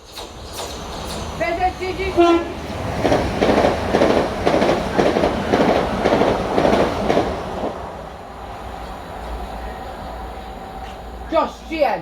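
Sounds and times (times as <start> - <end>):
train wheels clattering over rail joints: 0.0 - 1.4, 3.0 - 7.8.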